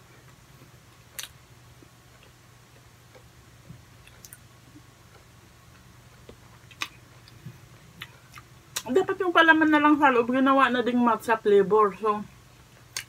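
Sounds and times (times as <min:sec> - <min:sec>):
low steady hum: 0:00.0 - 0:13.0
person chewing: 0:00.2 - 0:08.9.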